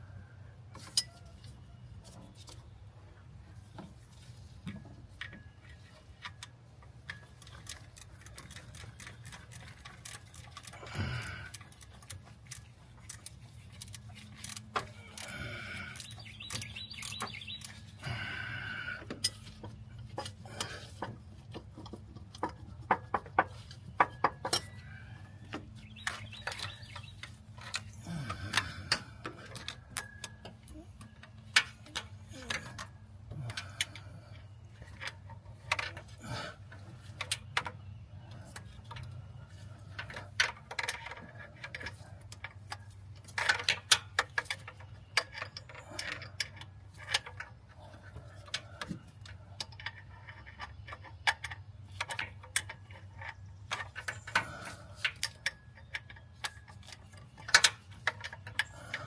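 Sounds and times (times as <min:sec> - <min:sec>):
steady low hum: 0:02.7 - 0:59.0.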